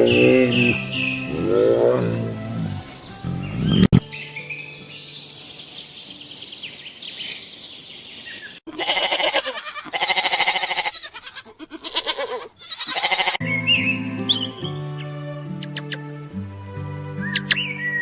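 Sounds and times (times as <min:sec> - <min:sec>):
goat bleating: 0:08.7 - 0:13.4
faint high chirping: 0:13.4 - 0:16.0, 0:17.2 - 0:18.0.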